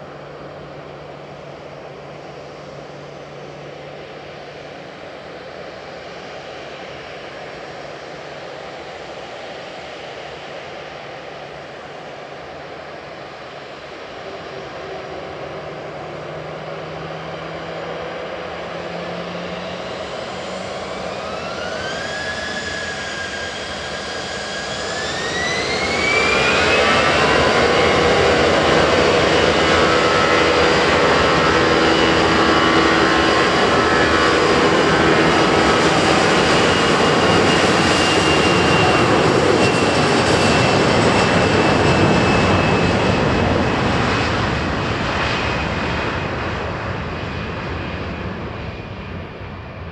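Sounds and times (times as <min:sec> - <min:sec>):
jet engines spooling up: 0:12.6 - 0:49.9.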